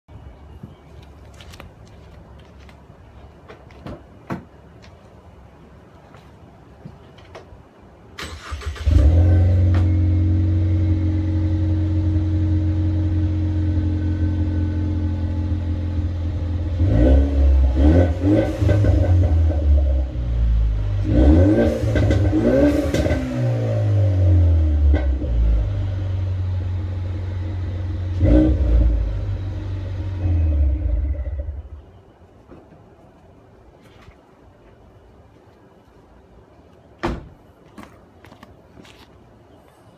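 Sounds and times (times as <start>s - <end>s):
car engine idling and revving: 8.3s - 31.9s.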